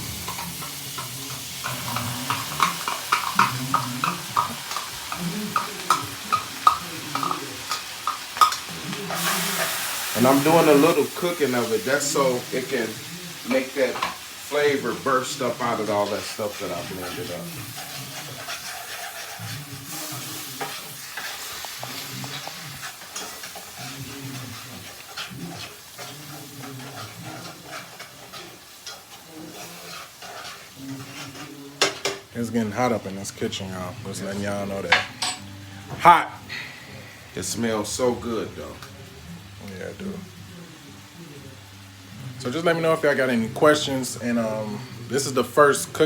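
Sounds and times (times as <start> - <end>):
faint sizzle: 0.0 - 46.0
spoon tapping a pan: 0.1 - 9.8, 31.8 - 32.3.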